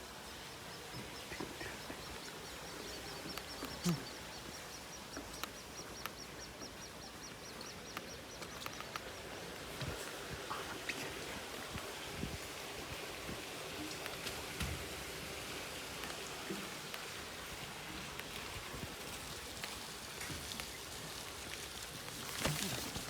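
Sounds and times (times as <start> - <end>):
sharp drip ticks: 0.0 - 12.0
steady rain hiss: 0.0 - 23.0.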